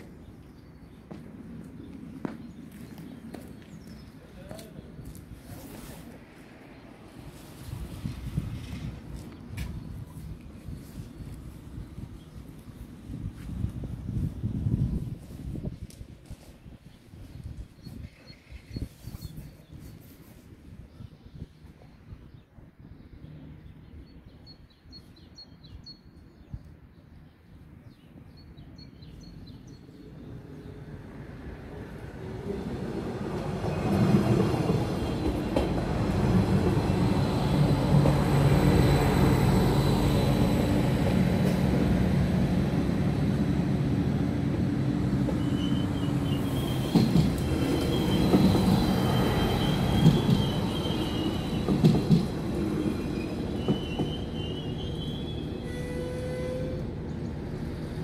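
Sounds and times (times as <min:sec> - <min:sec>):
railcar engine drone: 0:00.0 - 0:58.0
high squeal: 0:45.4 - 0:51.8, 0:52.8 - 0:56.8.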